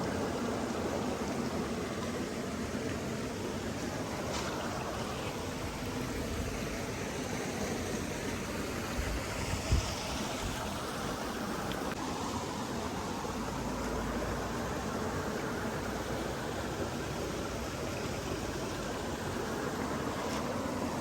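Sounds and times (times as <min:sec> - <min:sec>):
stream water flowing: 0:00.0 - 0:21.0.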